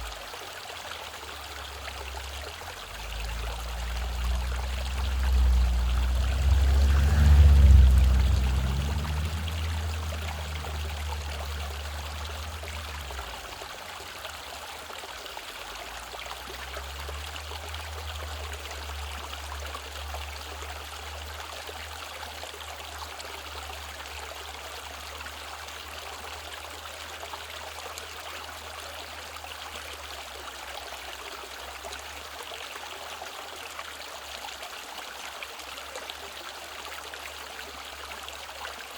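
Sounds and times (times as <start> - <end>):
stream water rushing: 0.0 - 38.9
low rumble with faint hum: 1.6 - 14.6.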